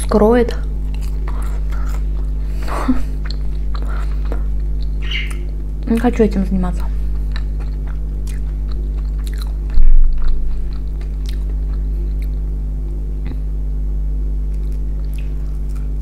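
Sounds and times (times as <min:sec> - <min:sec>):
steady low hum: 0:00.0 - 0:16.0
chewing fried fish: 0:00.8 - 0:06.2, 0:07.1 - 0:12.6, 0:14.4 - 0:16.0
low thump: 0:09.8 - 0:10.1.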